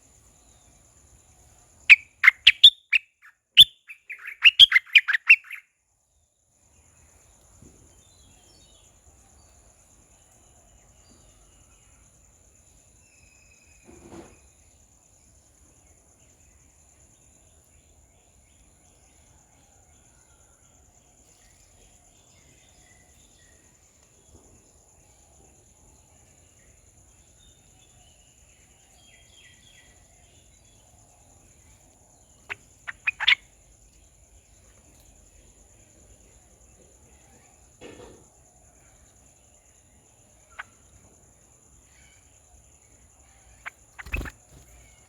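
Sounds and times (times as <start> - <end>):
faint bird calls: 1.9 - 5.6, 32.4 - 33.5, 43.2 - 45.0
sharp loud chirps: 1.9 - 5.6, 32.5 - 33.4, 43.6 - 45.0
high insect drone: 6.3 - 45.0.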